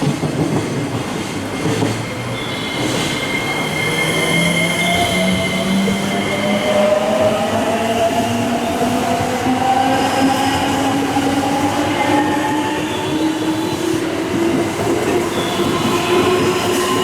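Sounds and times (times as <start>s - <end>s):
train wheels rumbling on rail: 0.0s - 17.0s
high wheel squeal: 2.1s - 7.1s, 15.1s - 17.0s.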